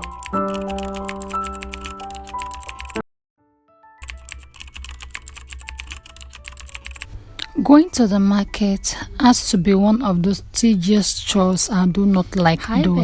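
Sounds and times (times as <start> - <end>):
computer keyboard typing: 0.0 - 3.0, 4.0 - 7.5
soft electric piano music: 0.0 - 8.6.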